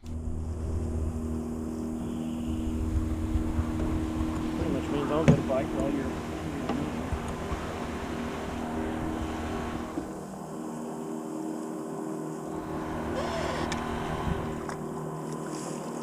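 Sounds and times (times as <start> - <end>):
wind noise: 0.0 - 10.1, 12.6 - 14.6
outboard motor running: 0.0 - 16.0
water noise: 0.0 - 16.0.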